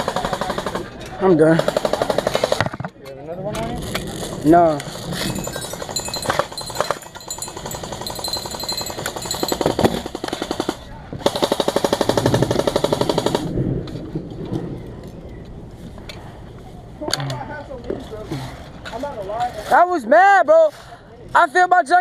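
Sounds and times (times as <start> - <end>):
airsoft guns firing full auto: 0.0 - 2.9, 5.4 - 13.6.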